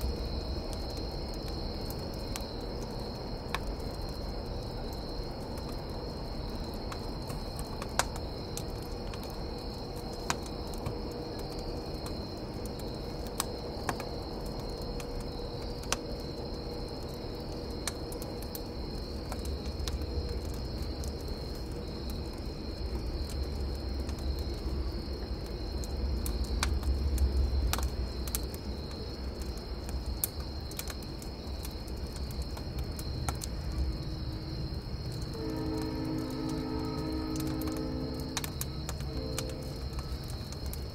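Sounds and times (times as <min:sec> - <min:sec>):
campfire crackling and popping: 0:00.0 - 0:40.9
crickets chirping: 0:00.0 - 0:40.9
low rumble: 0:35.1 - 0:40.9.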